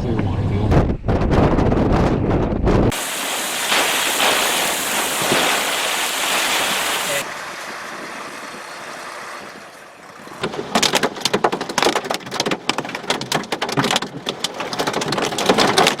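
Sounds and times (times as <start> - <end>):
wind and rain rush: 0.8 - 9.5
heavy rain pelting hard surface: 2.9 - 7.4.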